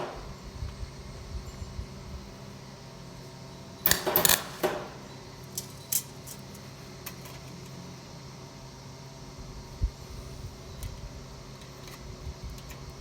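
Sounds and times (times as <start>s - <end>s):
sharp clinks and rattles: 3.9s - 4.8s, 5.5s - 6.6s.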